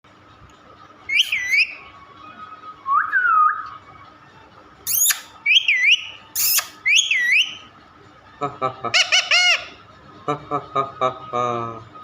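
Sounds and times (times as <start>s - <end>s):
parrot whistling: 1.1s - 1.9s, 2.8s - 3.8s, 4.9s - 7.7s.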